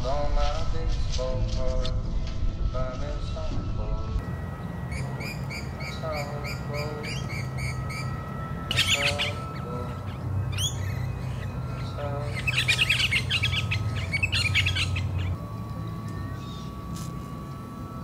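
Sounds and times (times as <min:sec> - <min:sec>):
steady low hum: 0:00.0 - 0:18.0
thin steady high tone: 0:03.7 - 0:18.0
birds chirping and calling: 0:04.5 - 0:15.4, 0:16.1 - 0:17.2.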